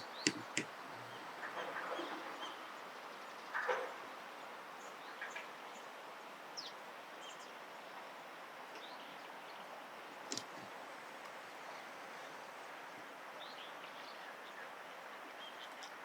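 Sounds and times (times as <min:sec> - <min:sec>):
outdoor background hiss: 0:00.0 - 0:16.0
sharp click: 0:00.3 - 0:00.7.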